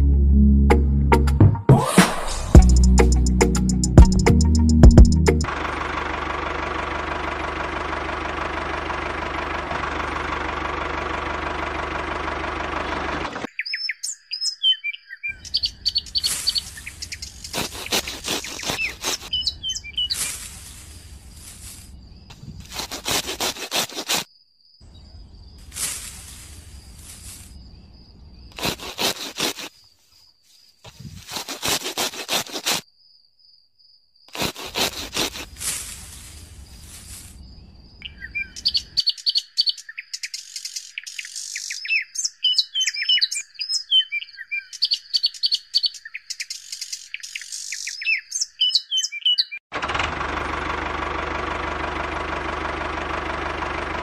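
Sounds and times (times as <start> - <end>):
engine starting and running: 4.5 - 13.5, 49.7 - 54.0
birds chirping: 12.3 - 22.7, 36.1 - 49.6.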